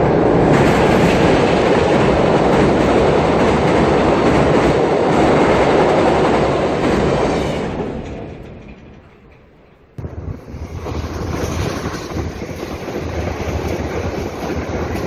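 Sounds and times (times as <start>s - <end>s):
train rumbling over steel bridge: 0.0s - 15.0s.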